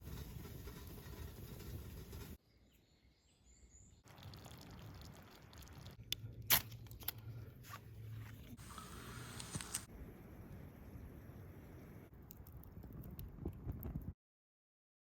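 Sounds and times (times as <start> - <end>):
faint high bird chirps: 2.4 - 4.0
soft hiss: 8.6 - 12.1
sharp clicks or snaps: 9.3 - 9.9.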